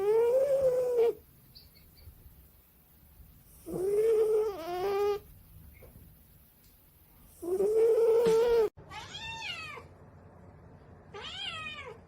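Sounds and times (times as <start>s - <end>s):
cat meowing: 8.2s - 9.9s, 11.1s - 12.0s.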